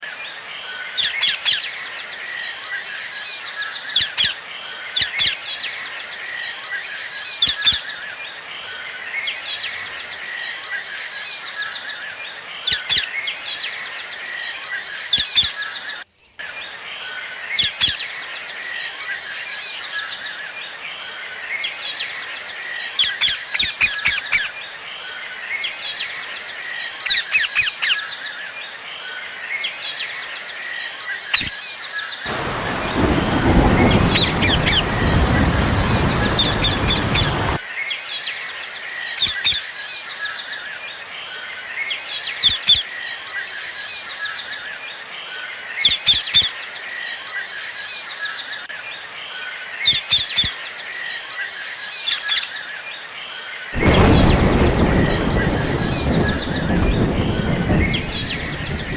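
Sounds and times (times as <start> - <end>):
birds chirping in trills: 32.3 - 37.6, 53.8 - 58.9
birds twittering: 32.3 - 37.6, 53.8 - 58.9.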